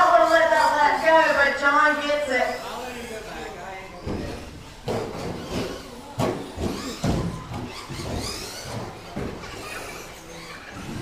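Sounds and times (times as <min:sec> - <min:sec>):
sharp knocks and thumps: 0:04.0 - 0:09.8.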